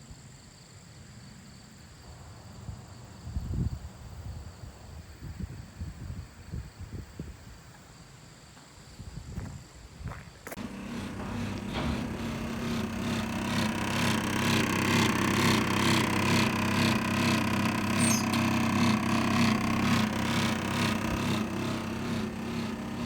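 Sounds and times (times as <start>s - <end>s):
cooling unit humming: 10.6s - 23.0s
rhythmic mechanical clatter: 10.6s - 23.0s.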